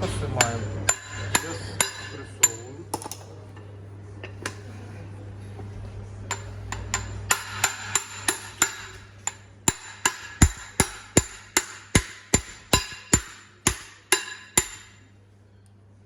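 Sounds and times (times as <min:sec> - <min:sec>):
hammer striking metal: 0:00.0 - 0:03.2, 0:06.3 - 0:15.1
low steady hum: 0:00.0 - 0:16.0.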